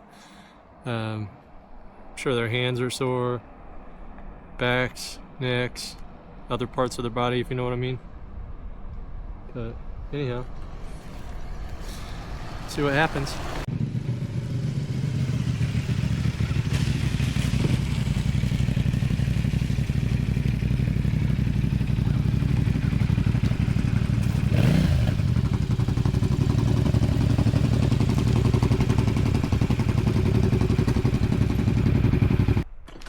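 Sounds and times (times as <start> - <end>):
motorcycle engines idling: 11.6 - 32.6.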